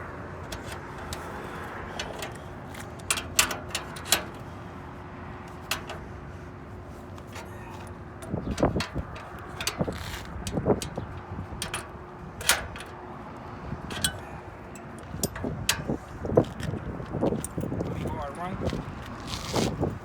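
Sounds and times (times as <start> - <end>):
tools clicking and knocking: 0.5 - 4.4, 5.7 - 6.1, 7.2 - 13.0, 13.9 - 16.0.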